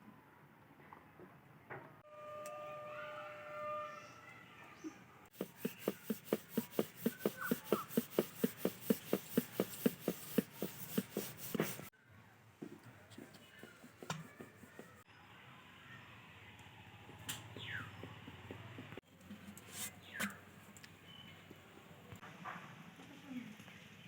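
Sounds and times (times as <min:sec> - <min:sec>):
rolling pin knocking on wooden board: 0:05.4 - 0:11.9, 0:12.6 - 0:15.0.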